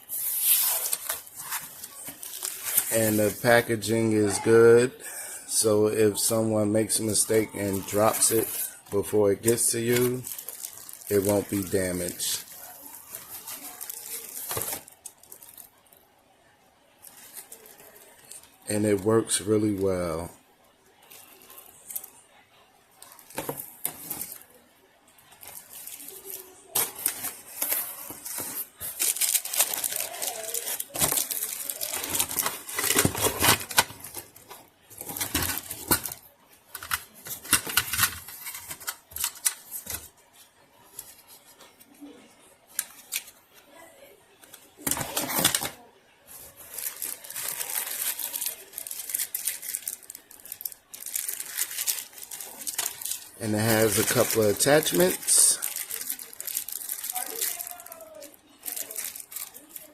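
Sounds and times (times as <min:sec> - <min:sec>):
dense crinkling rustle: 0:07.3 - 0:15.7, 0:25.2 - 0:36.2, 0:46.3 - 0:59.9.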